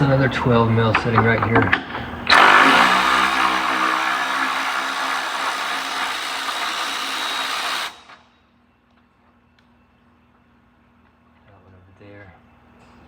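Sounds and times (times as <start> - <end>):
power ratchet spinning: 2.3 - 8.2.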